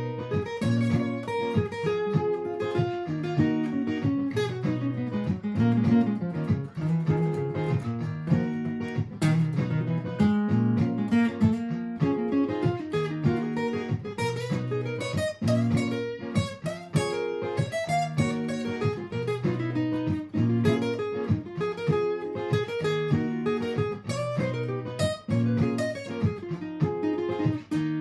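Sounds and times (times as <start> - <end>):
looped acoustic guitar chords: 0.0 - 28.0
picked guitar single-note lines: 0.0 - 28.0.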